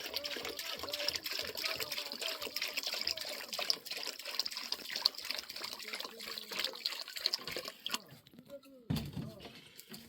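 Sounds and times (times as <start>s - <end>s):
water dripping: 0.0s - 8.4s
water trickling and splashing: 0.0s - 8.4s.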